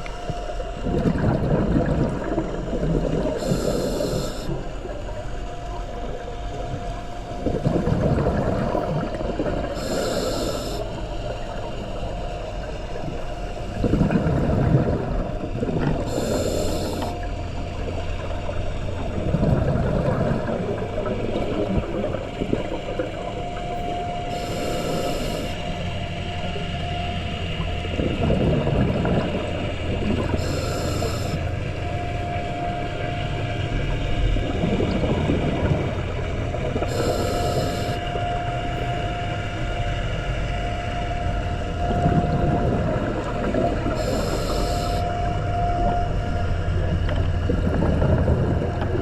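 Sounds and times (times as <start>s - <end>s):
scuba regulator bubbles rumbling: 0.0s - 49.0s
thin constant tone: 0.0s - 49.0s
regulator inhalation hiss: 3.2s - 4.6s, 9.7s - 11.3s, 16.0s - 17.3s, 24.2s - 25.7s, 30.3s - 31.4s, 36.8s - 38.2s, 43.9s - 45.5s.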